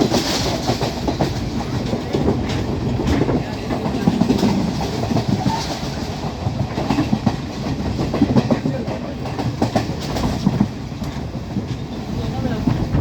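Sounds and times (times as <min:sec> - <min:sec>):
train rumbling along track: 0:00.0 - 0:13.0
wheels clattering on rails: 0:00.0 - 0:13.0.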